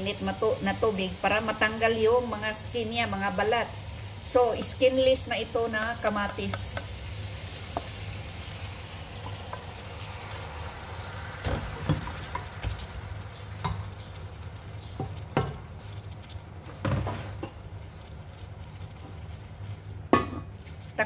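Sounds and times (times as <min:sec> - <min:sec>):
fish sizzling in a metal pot: 0:00.0 - 0:21.0
wooden spatula scraping a pot: 0:13.5 - 0:21.0.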